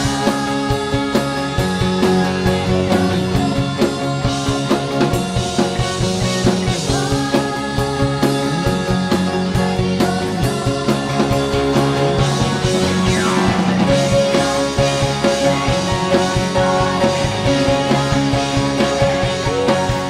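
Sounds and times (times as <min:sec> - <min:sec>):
rock music with drums and guitar: 0:00.0 - 0:20.0.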